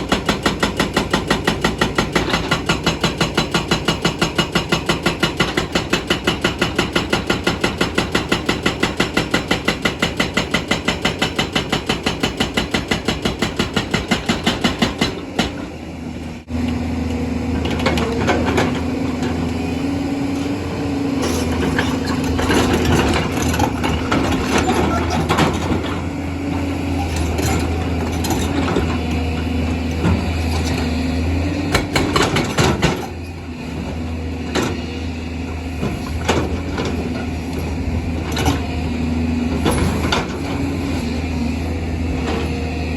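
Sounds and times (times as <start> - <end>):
diesel engine running: 14.8 - 42.9.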